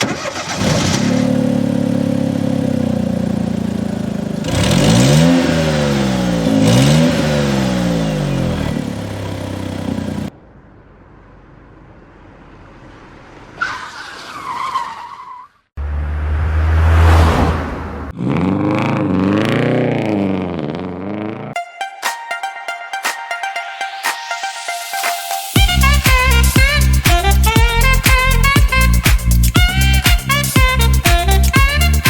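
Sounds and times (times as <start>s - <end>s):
engine starting loud: 0.0s - 2.4s
sports car engine revving: 0.6s - 12.8s, 15.8s - 21.6s.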